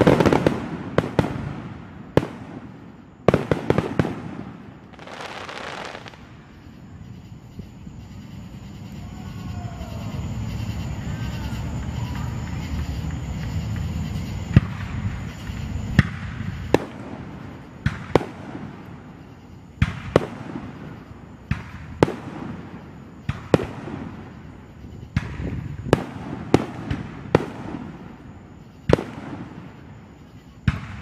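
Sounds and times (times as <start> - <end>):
fireworks bangs with echo: 0.0 - 6.6, 9.1 - 31.0.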